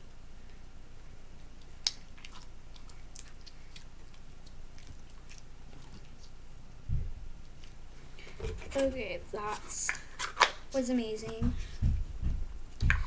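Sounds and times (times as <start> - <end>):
slime squeezed with wet pops: 9.8 - 10.7.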